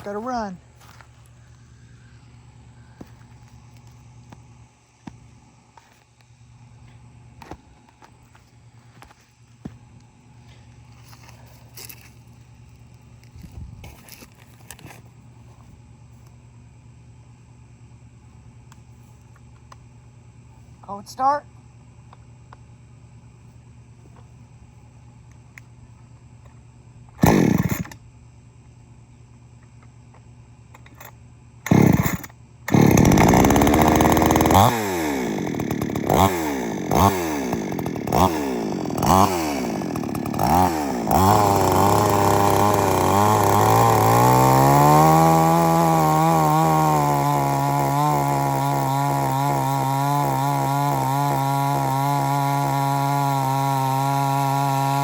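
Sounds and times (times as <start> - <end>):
chainsaw engine running: 0.0 - 4.3, 27.2 - 28.0, 30.9 - 55.0
chainsaw starter cord pull: 27.2 - 28.0, 31.7 - 55.0.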